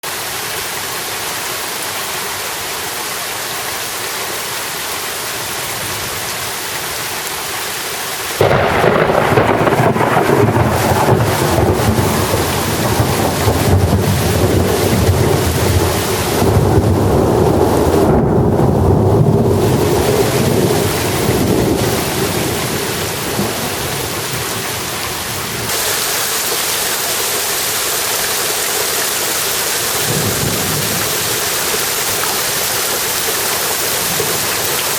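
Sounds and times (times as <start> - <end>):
steady rain hiss: 0.0 - 34.9
thunder clap rumbling: 8.4 - 24.8, 29.8 - 32.0.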